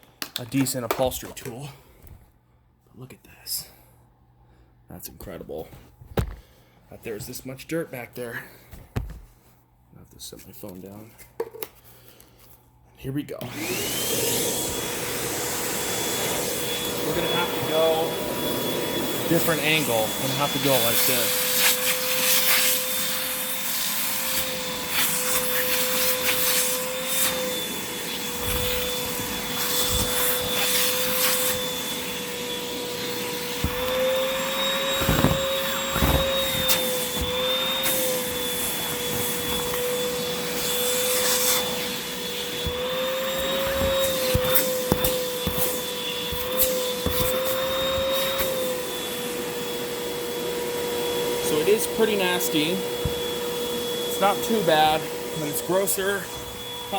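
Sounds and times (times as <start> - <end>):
vacuum cleaner motor whine: 13.4 - 56.9
vacuum tool scraping and knocking: 13.4 - 56.9.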